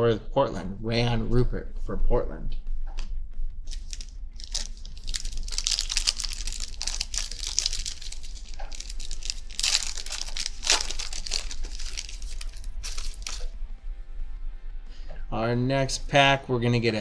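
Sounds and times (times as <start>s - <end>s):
plastic wrapper ripping: 3.7s - 13.5s
plastic wrapper crinkling: 3.7s - 14.0s.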